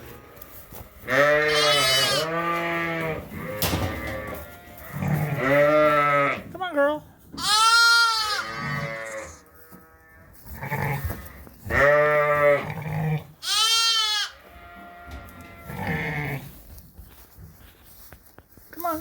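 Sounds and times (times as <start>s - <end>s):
sheep bleating: 1.1s - 6.4s, 7.4s - 11.0s, 11.7s - 16.4s.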